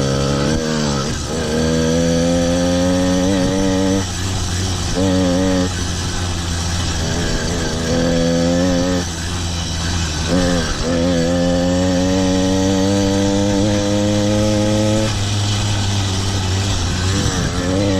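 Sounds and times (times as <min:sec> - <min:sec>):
two-stroke bicycle engine revving: 0:00.0 - 0:17.9.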